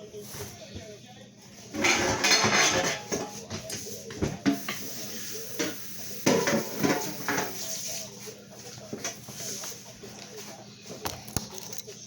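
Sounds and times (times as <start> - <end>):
pots and pans clattering: 1.6 - 8.0, 8.9 - 9.5.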